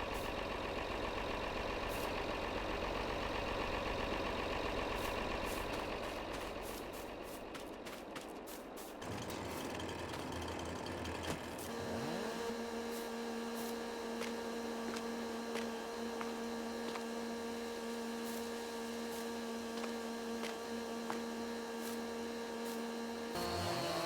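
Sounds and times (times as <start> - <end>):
motor humming: 9.0 - 24.0.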